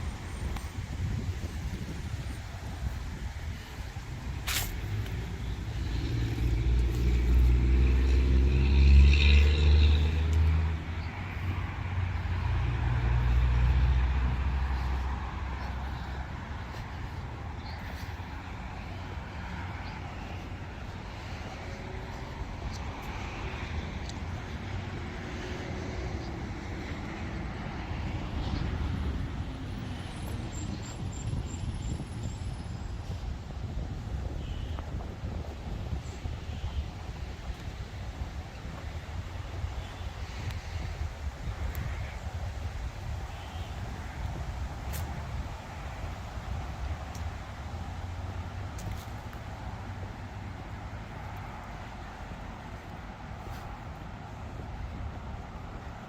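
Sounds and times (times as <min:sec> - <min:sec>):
road traffic passing: 0:00.0 - 0:56.0
vehicle engine passing: 0:04.1 - 0:18.0.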